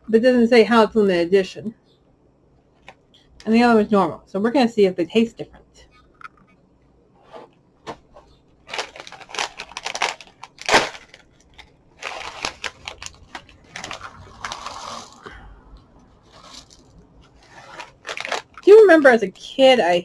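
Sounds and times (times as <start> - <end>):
plastic bag rustling: 7.2 - 19.3
cereal box crinkling and tearing: 7.9 - 15.3, 16.2 - 19.2.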